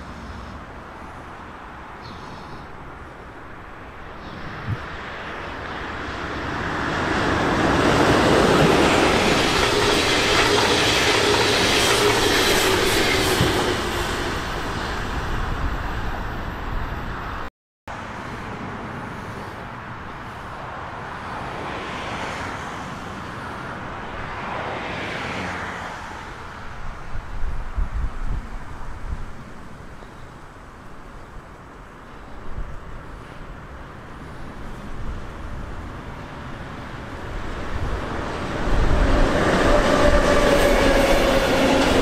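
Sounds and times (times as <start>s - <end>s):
quieter electric train running by: 0.0s - 42.0s
freight train approaching: 2.8s - 17.5s, 33.1s - 42.0s
train rushing past: 4.7s - 17.5s, 34.8s - 42.0s.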